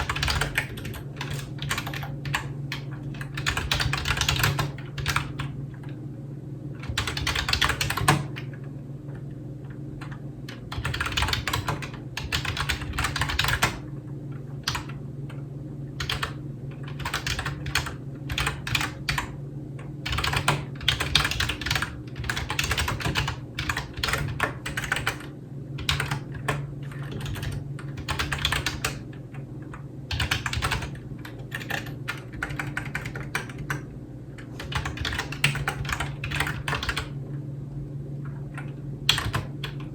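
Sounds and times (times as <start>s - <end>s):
typing on computer keyboard: 0.0s - 5.6s, 6.8s - 8.5s, 10.0s - 13.8s, 14.6s - 15.0s, 16.0s - 19.3s, 20.1s - 29.0s, 30.1s - 33.9s, 34.6s - 37.1s, 39.1s - 39.9s
steady low hum: 0.0s - 39.9s.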